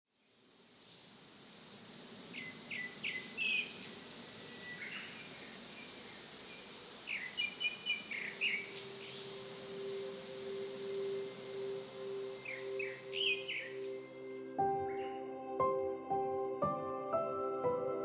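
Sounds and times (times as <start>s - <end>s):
songbird chirping: 0.1s - 18.0s
soft background music: 7.8s - 18.0s.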